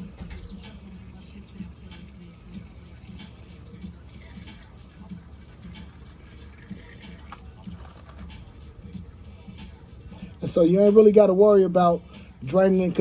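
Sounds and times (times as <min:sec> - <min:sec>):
oil dripping into a pan: 0:00.0 - 0:08.8.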